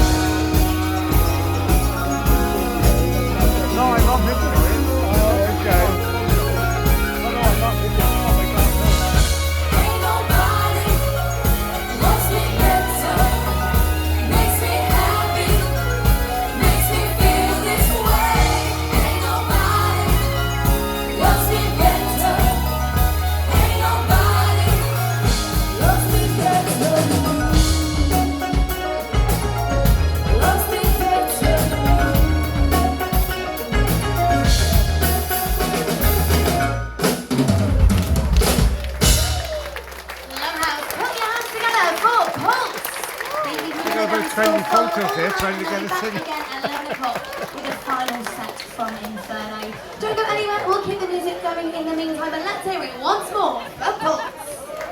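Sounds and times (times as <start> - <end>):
bass line: 0.0 - 40.3
drum kit: 0.0 - 40.4
person singing: 7.7 - 33.8.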